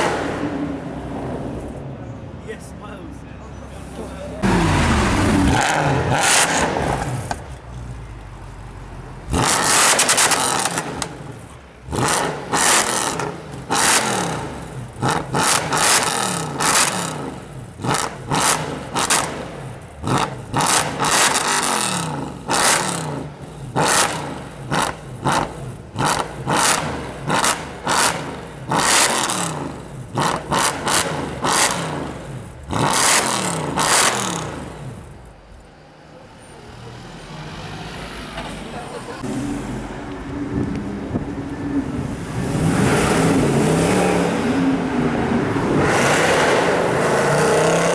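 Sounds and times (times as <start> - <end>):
sports car exhaust revving: 4.4 - 8.1, 9.3 - 35.2.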